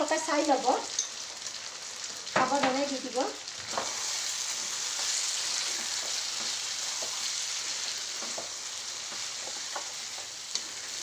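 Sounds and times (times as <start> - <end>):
chicken sizzling in a pan: 0.0 - 11.0
spoon knocking on pan: 8.2 - 10.3.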